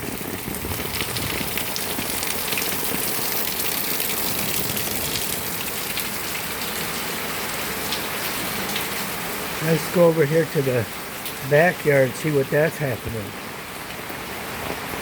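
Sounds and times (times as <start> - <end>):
close raindrop hits: 0.0 - 7.1
heavy rain pouring: 0.0 - 15.0.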